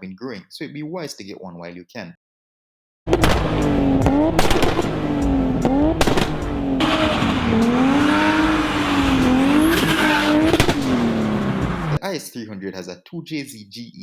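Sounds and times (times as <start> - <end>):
car engine revving: 3.1 - 12.0
sharp exhaust cracks: 3.1 - 12.0
hissing tyre noise: 5.6 - 12.0.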